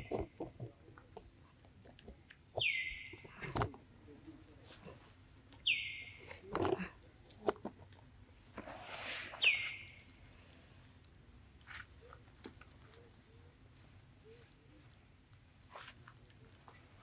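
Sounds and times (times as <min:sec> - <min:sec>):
rustle: 0:01.3 - 0:17.0
bird whistled calls: 0:02.6 - 0:03.1, 0:05.6 - 0:06.2, 0:09.4 - 0:10.0.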